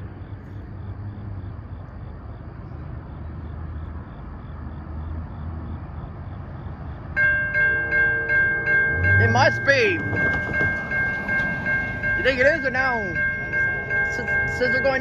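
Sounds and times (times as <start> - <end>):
train rumble: 6.3 - 15.0
railroad crossing bell ringing: 7.1 - 15.0.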